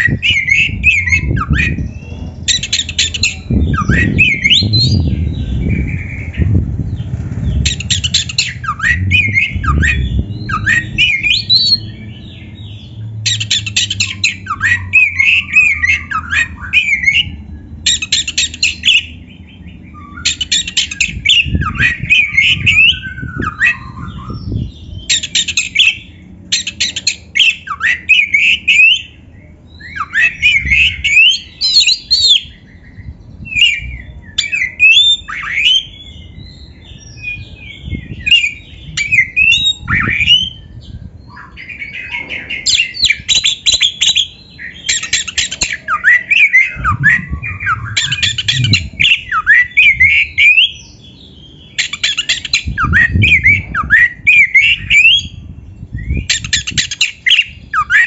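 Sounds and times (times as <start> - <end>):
bird singing loudly: 0.0 - 58.0
low rumble: 3.2 - 17.9, 46.5 - 50.0.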